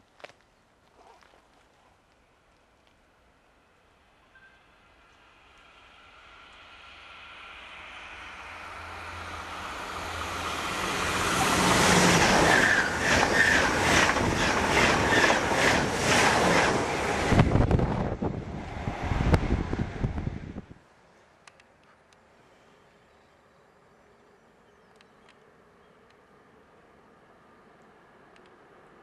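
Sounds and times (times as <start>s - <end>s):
high-speed train passing: 3.0s - 20.8s, 25.4s - 29.0s.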